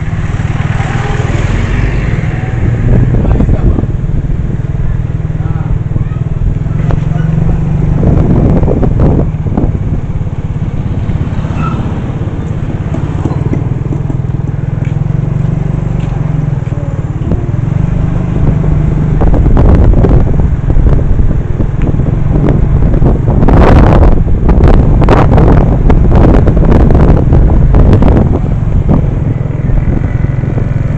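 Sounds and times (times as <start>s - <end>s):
motor vehicle low rumble: 0.0s - 30.9s.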